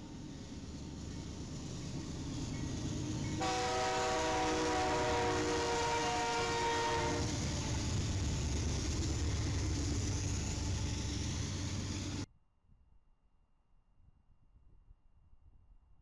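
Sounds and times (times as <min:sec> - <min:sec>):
train rumble: 0:00.0 - 0:12.3
locomotive horn: 0:03.4 - 0:07.4.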